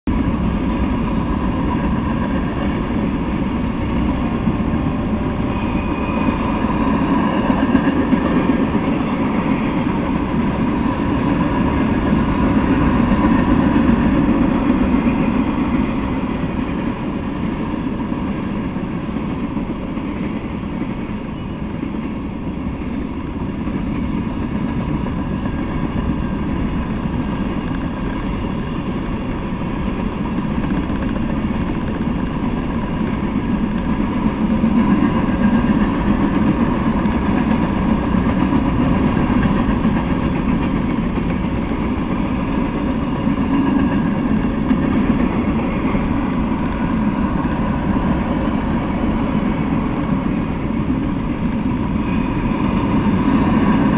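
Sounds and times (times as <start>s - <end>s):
freight train wheels rumbling: 0.0s - 53.9s.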